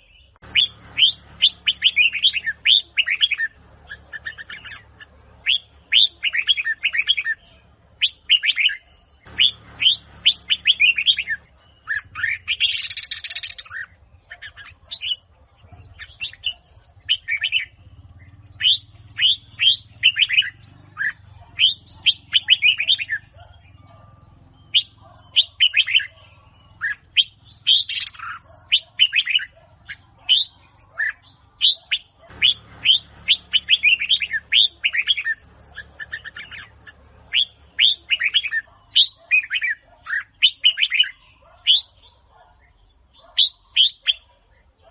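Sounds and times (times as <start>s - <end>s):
bird singing bright chirps: 0.0s - 44.9s.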